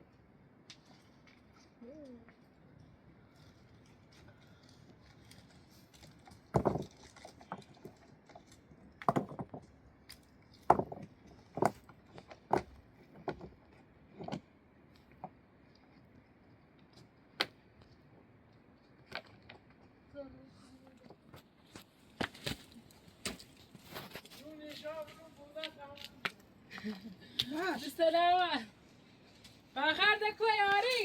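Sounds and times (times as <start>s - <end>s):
hard objects knocking and clinking: 9.0s - 9.6s.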